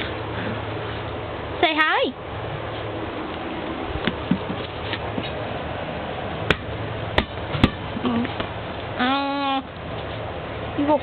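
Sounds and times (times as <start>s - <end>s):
sharp knocks: 6.5s - 7.8s.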